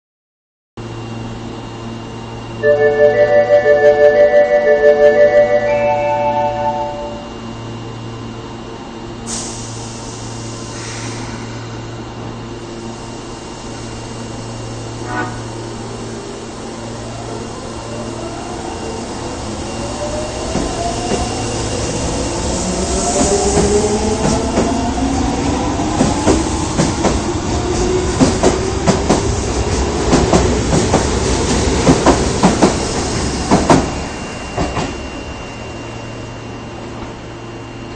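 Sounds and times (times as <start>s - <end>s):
train horn blast: 2.6s - 7.4s, 15.0s - 15.6s.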